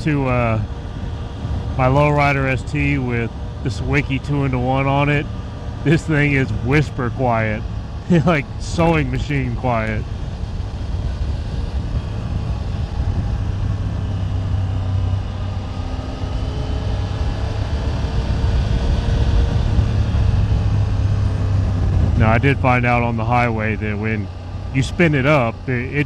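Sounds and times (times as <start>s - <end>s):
motorcycle engine humming: 0.0s - 26.0s.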